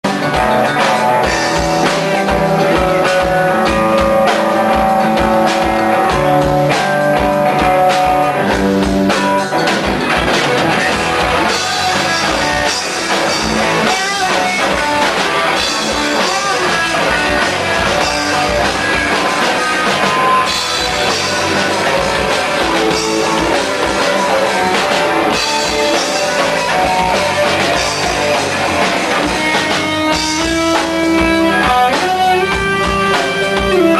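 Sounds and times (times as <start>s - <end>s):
drum kit beat: 0.0s - 33.9s
rock guitars playing: 0.0s - 33.9s.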